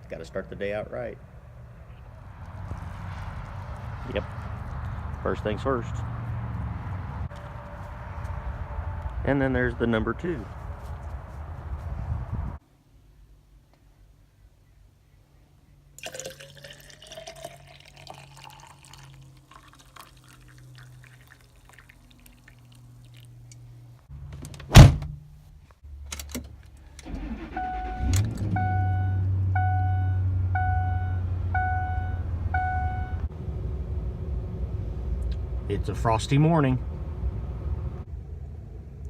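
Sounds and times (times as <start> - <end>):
vehicle door slamming: 24.4 - 25.2
vehicle engine starting and idling: 25.9 - 39.0
dashboard warning chime beeping: 27.2 - 33.3.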